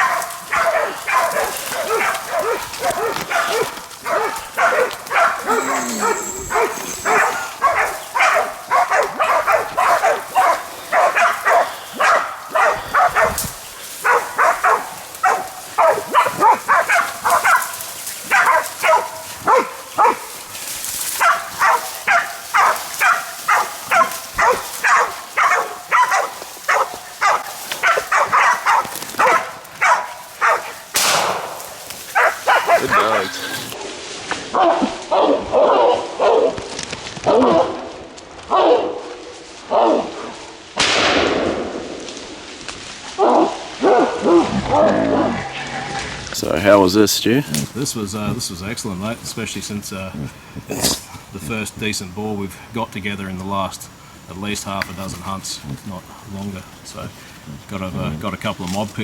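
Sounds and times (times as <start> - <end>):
dogs barking: 0.0 - 33.8, 34.5 - 36.6, 37.3 - 37.9, 38.5 - 40.3, 43.2 - 45.4.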